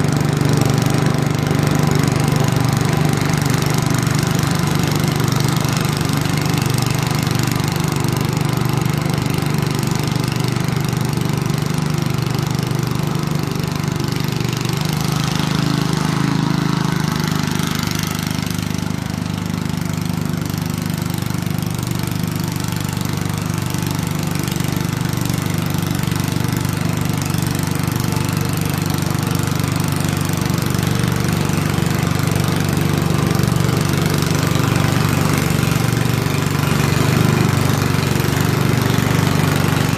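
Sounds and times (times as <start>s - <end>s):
snow thrower engine running: 0.0s - 39.9s.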